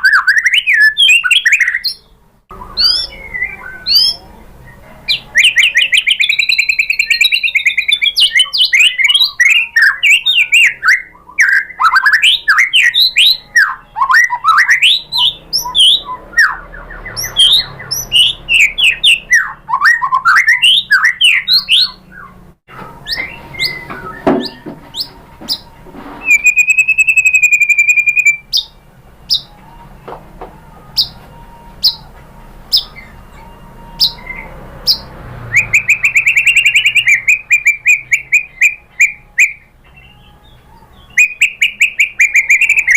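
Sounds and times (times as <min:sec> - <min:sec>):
long steady bird whistle: 0:00.0 - 0:04.3, 0:05.4 - 0:22.4, 0:26.2 - 0:29.6, 0:32.7 - 0:40.4, 0:41.0 - 0:42.9
bird singing whistled phrases: 0:00.0 - 0:22.4, 0:23.0 - 0:29.6, 0:30.9 - 0:31.2, 0:32.7 - 0:42.9.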